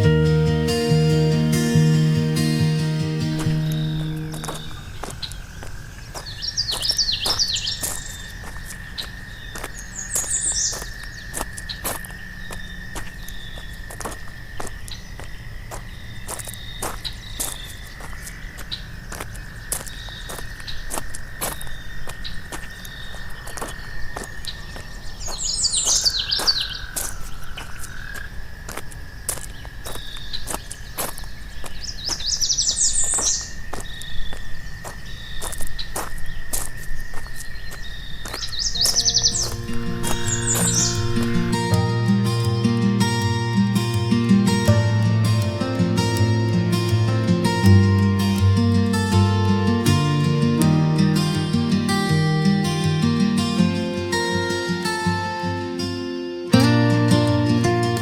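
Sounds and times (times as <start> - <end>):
high thin drone: 0.0 - 5.0, 38.8 - 54.1
acoustic guitar music: 0.0 - 5.3, 38.7 - 58.0
high insect drone: 0.0 - 30.0, 32.2 - 58.0
songbird chirping: 0.0 - 58.0
footsteps on a path: 2.8 - 55.7.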